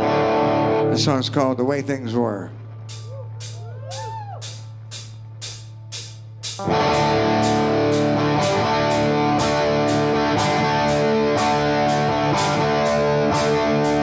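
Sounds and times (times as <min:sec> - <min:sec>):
live rock band playing: 0:00.0 - 0:01.1, 0:02.8 - 0:14.0
electric guitars strumming chords: 0:00.0 - 0:03.6, 0:04.4 - 0:14.0
percussion strikes: 0:02.8 - 0:14.0.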